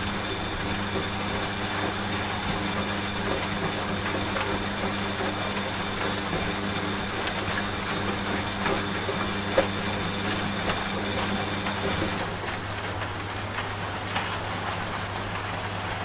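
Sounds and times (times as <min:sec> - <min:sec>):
high whine from machine: 0:00.0 - 0:12.4
rain falling: 0:00.0 - 0:16.0
washing machine motor hum: 0:00.0 - 0:16.0.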